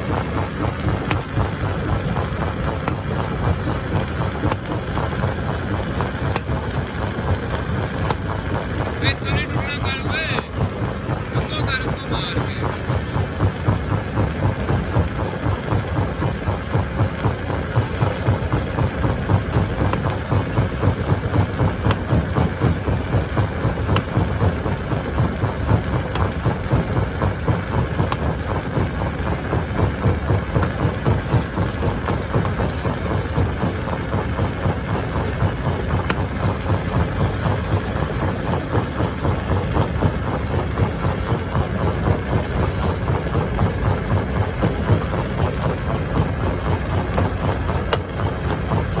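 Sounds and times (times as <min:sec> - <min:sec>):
stone crusher machine rumbling: 0:00.0 - 0:49.0.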